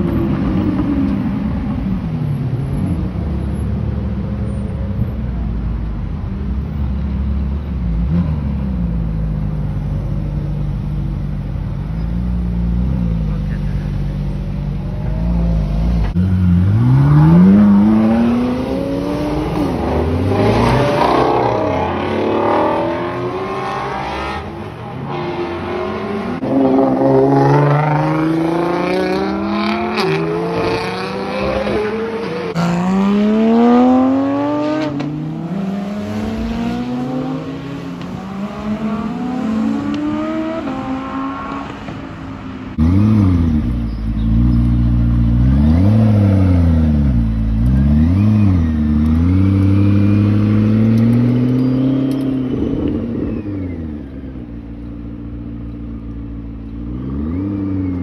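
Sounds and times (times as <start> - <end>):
car engine revving up: 14.7 - 42.0, 42.7 - 54.6.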